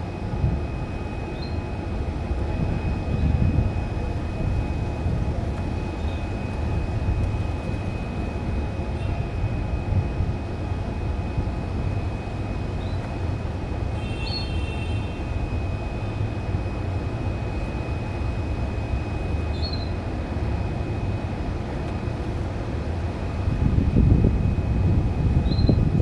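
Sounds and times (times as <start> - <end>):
low rumbling noise: 0.0 - 26.0
faint canary chirps: 14.0 - 14.9, 19.5 - 19.9.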